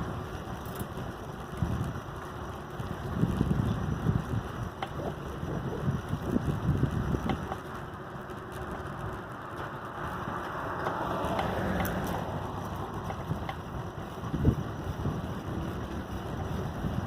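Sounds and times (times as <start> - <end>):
tricycle rolling on road: 0.0 - 17.0
wind buffeting microphone: 0.0 - 17.0
faint clicks: 6.7 - 13.7.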